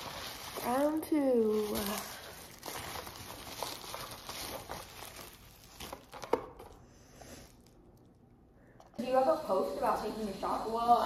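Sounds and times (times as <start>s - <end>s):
bubble wrap crinkling: 0.0s - 8.2s.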